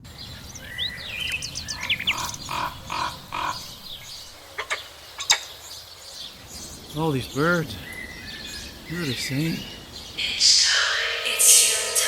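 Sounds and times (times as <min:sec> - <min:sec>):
birds chirping and whistling: 0:00.0 - 0:12.0
low bird call: 0:00.0 - 0:12.0
sharp bird chips: 0:00.5 - 0:06.4.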